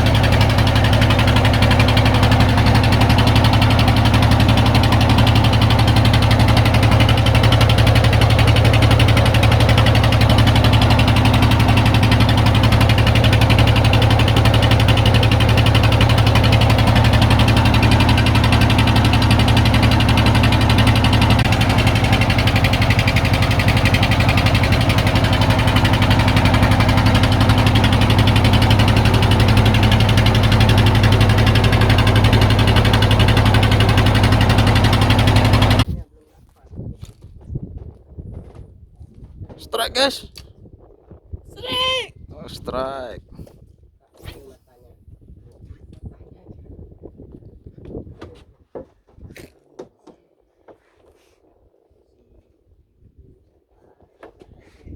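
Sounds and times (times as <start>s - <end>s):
motor engine running: 0.0s - 36.0s.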